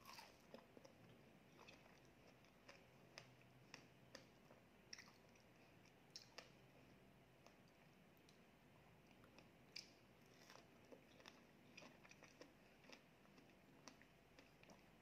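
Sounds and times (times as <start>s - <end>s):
person chewing strawberry: 0.0s - 15.0s.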